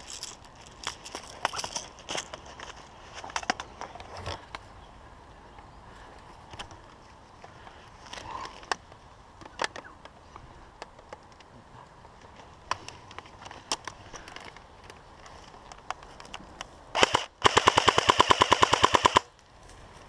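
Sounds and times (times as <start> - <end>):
footsteps on twiggy ground: 0.0 - 4.8
faint steady background noise: 0.0 - 20.0.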